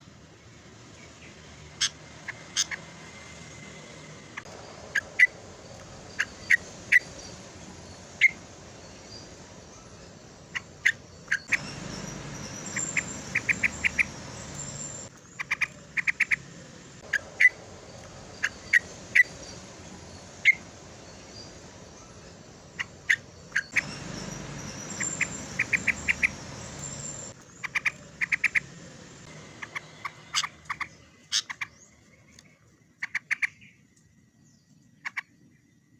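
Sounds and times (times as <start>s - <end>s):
bulbul chirping: 4.4s - 28.7s.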